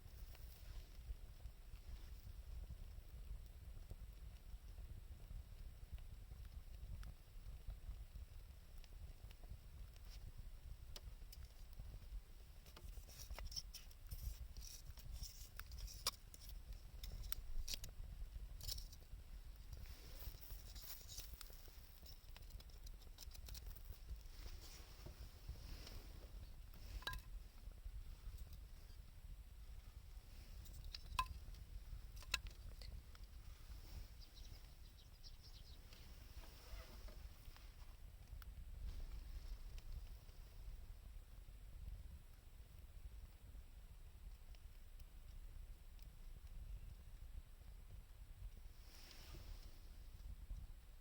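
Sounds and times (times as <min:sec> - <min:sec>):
wood fire crackling and popping: 0:00.2 - 0:35.2
faint hiss: 0:48.6 - 0:50.6.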